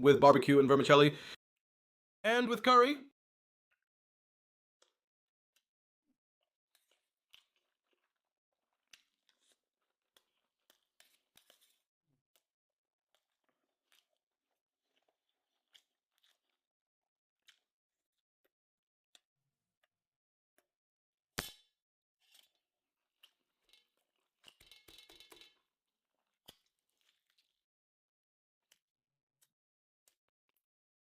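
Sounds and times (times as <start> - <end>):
person chewing and crunching: 6.7 - 12.5, 13.1 - 16.6, 26.0 - 27.6.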